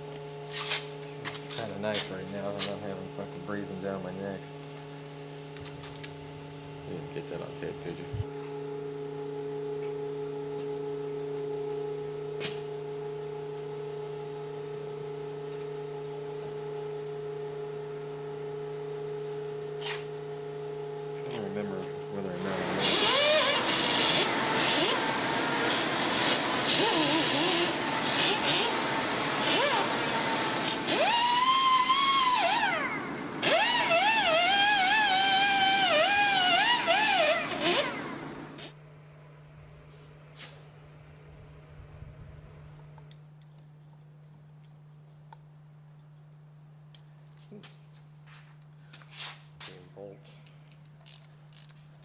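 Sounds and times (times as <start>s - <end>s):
steady multi-tone hum: 0.0s - 52.0s
power tool motor whining: 21.2s - 38.8s.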